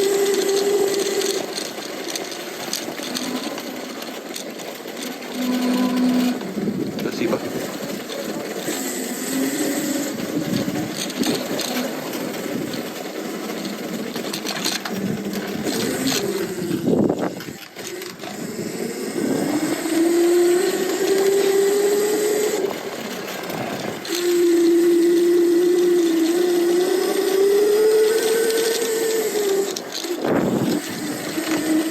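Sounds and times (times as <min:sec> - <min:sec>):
e-bike motor whining: 0:00.0 - 0:31.9
road and wind noise: 0:06.4 - 0:31.9.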